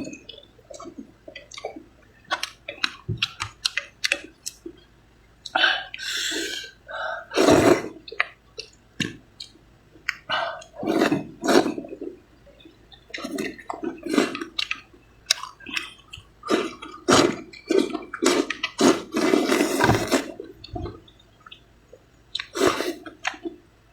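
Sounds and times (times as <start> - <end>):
chewing: 0.0 - 6.1, 8.0 - 23.6
person slurping noodles: 6.0 - 8.0, 10.8 - 12.0, 13.2 - 14.4, 16.5 - 20.9, 22.5 - 23.1.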